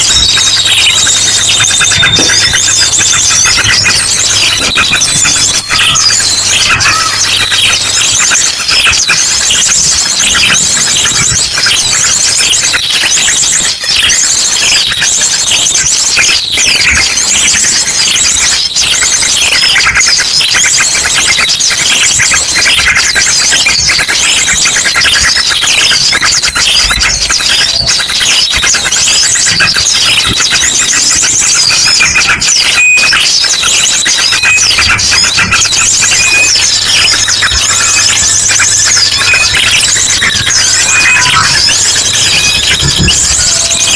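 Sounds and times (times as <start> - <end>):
bird song in fast trills: 0.0 - 43.9
small birds chirping: 0.0 - 43.9.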